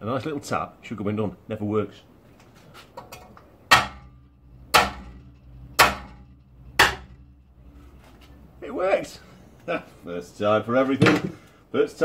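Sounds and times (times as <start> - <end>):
hammer blows on metal: 3.7 - 8.1.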